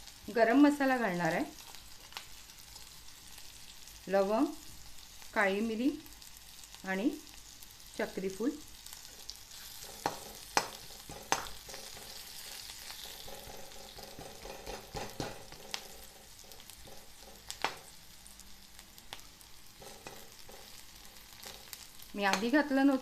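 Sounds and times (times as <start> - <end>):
onions sizzling in oil: 0.0 - 23.0
ladle scraping and knocking pan: 9.6 - 17.8, 19.8 - 21.8.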